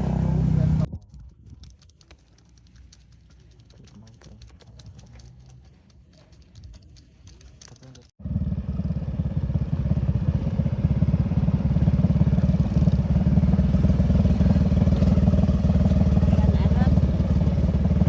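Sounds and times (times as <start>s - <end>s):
motorcycle engine running: 0.0s - 0.9s, 8.2s - 18.0s
faint clicks: 1.0s - 8.1s.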